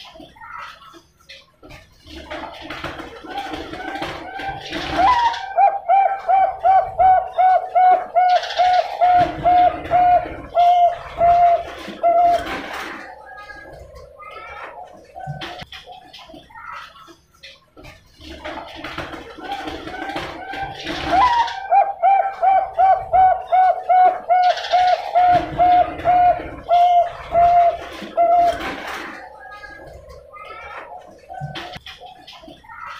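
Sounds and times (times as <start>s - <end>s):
dove cooing: 3.3s - 15.6s, 19.4s - 31.9s.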